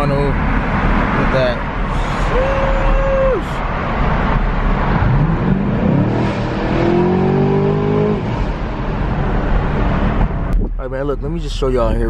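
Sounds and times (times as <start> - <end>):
car engine accelerating: 3.4 - 11.5.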